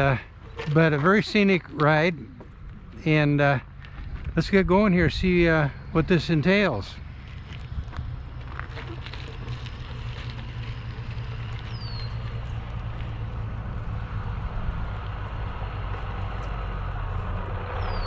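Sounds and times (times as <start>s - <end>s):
wind buffeting microphone: 1.0s - 16.4s
bicycle tyre noise: 7.1s - 14.2s.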